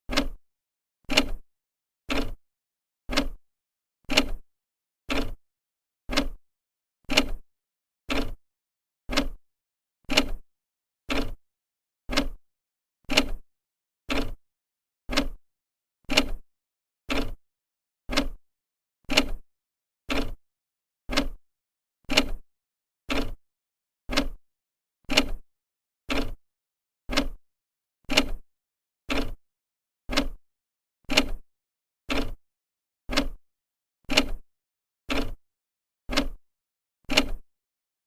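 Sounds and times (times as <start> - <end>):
clock ticking: 0.1 - 0.4, 3.1 - 3.4, 6.1 - 6.4, 9.1 - 9.4, 12.1 - 12.4, 15.1 - 15.4, 18.1 - 18.4, 21.1 - 21.4, 24.1 - 24.4, 27.1 - 27.4, 30.1 - 30.4, 32.1 - 32.4, 33.1 - 33.4, 35.1 - 35.4, 36.1 - 36.4.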